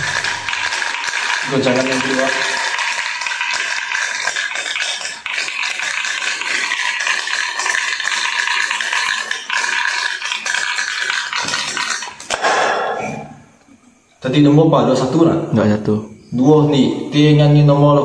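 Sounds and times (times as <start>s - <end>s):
dice rattling in plastic cup: 0.0s - 12.4s.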